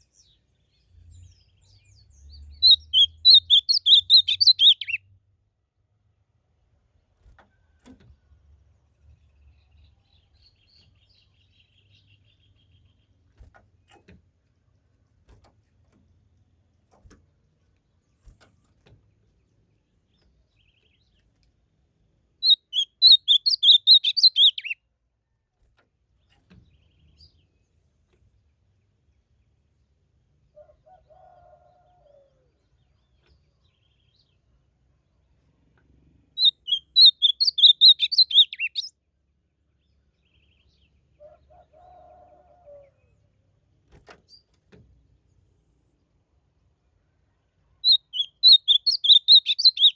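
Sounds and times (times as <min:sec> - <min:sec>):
bird singing quick notes: 0:01.7 - 0:05.0, 0:22.4 - 0:24.8, 0:36.4 - 0:38.9, 0:47.8 - 0:49.9.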